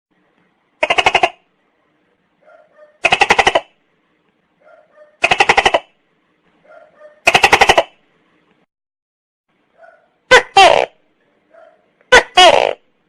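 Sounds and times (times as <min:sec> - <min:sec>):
gecko calling: 0:00.8 - 0:01.4, 0:02.5 - 0:03.8.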